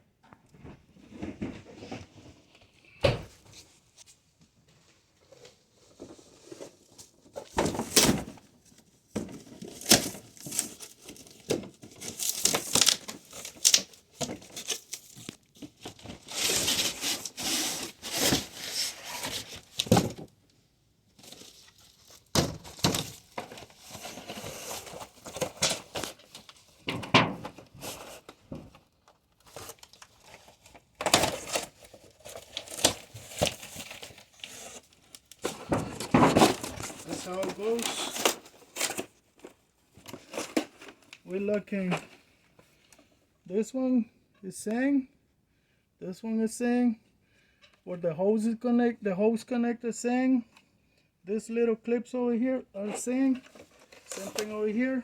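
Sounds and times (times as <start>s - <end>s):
knocks and thunks: 3.0s - 3.4s
packaging crinkling and tearing: 9.6s - 20.0s, 29.4s - 41.3s.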